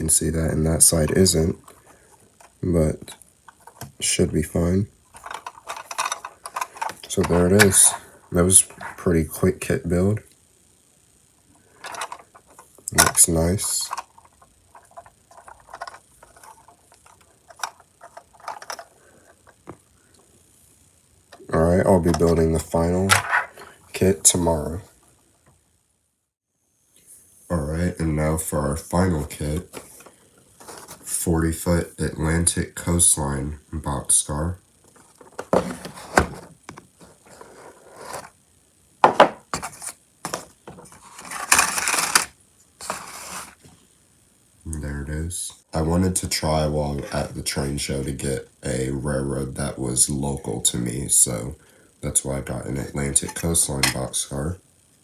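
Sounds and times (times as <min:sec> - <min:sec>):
plastic parts rustling and scraping: 0:00.8 - 0:09.4, 0:11.6 - 0:19.8, 0:21.3 - 0:24.6, 0:29.1 - 0:31.2, 0:34.8 - 0:38.4, 0:39.0 - 0:43.8, 0:46.9 - 0:47.5, 0:52.9 - 0:54.2
plastic model clicking and rattling: 0:05.2 - 0:07.9, 0:11.8 - 0:13.2, 0:13.9 - 0:18.9, 0:41.2 - 0:43.1.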